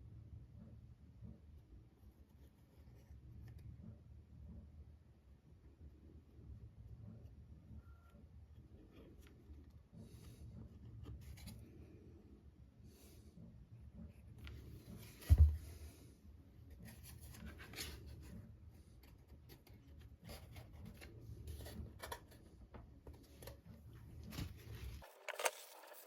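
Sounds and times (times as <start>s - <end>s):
heavy thump: 15.2s - 15.8s.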